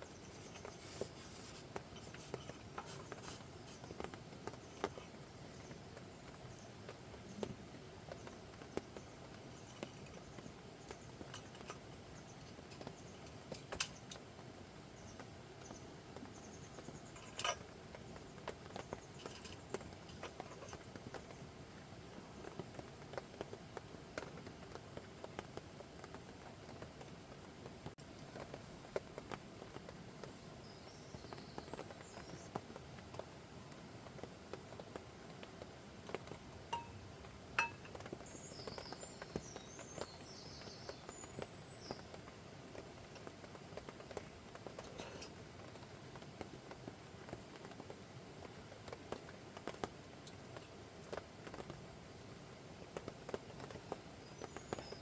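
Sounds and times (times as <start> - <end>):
sharp crackles and taps: 0.0 - 55.0
steady low hiss: 0.0 - 55.0.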